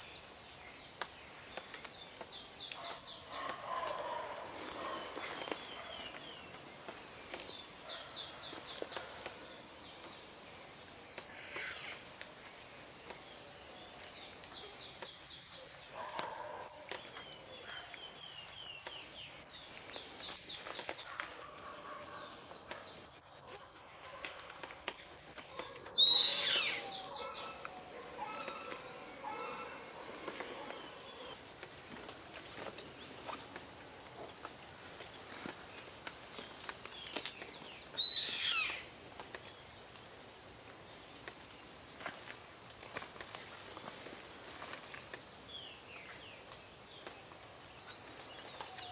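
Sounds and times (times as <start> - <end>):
insects droning: 0.0 - 48.9
birds calling: 25.4 - 31.4, 37.9 - 38.9
loud bird call: 26.0 - 29.8, 38.0 - 38.9.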